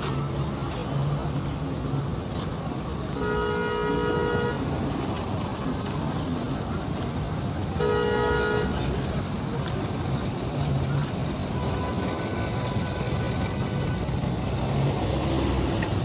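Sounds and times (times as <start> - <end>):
road traffic noise: 0.0 - 16.0
vehicle horn honking: 3.2 - 4.6, 7.8 - 8.8.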